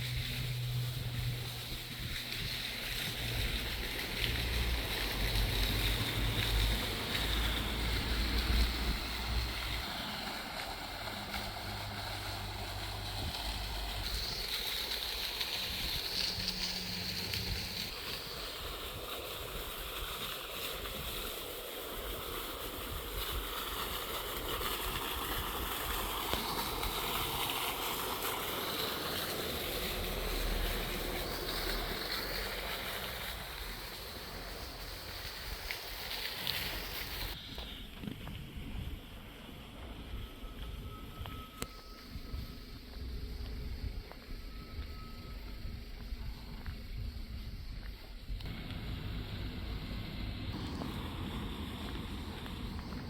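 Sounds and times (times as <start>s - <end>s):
wind gusting on microphone: 36.8s - 53.0s.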